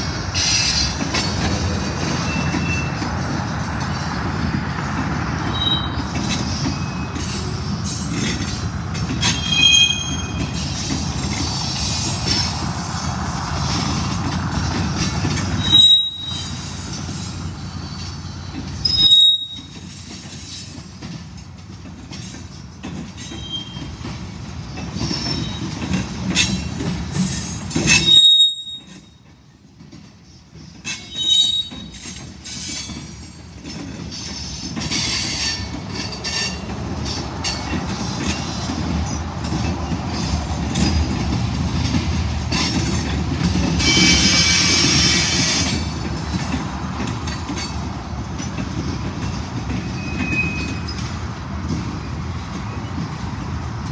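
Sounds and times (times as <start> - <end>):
freight cars rumbling on rails: 0.0 - 53.9
high-pitched wheel squeals: 2.2 - 3.1, 5.5 - 8.1, 9.2 - 10.7, 15.5 - 18.1, 18.8 - 20.1, 23.2 - 23.9, 27.9 - 29.1, 30.9 - 33.0, 43.8 - 45.8, 49.9 - 51.1.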